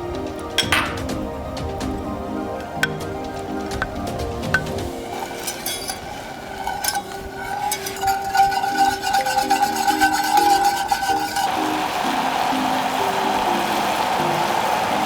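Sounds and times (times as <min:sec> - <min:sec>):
background music: 0:00.0 - 0:15.0
utensil scraping cooking vessel: 0:02.6 - 0:11.8.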